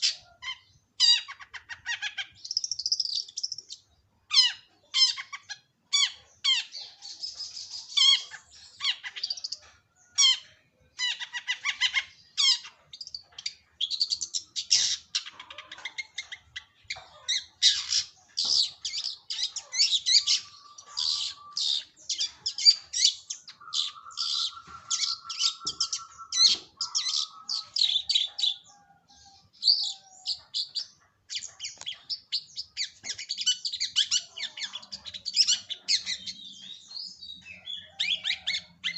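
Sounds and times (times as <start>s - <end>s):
bird harsh chattering song: 0.0s - 38.9s
low buzzy bird trill: 0.0s - 38.9s.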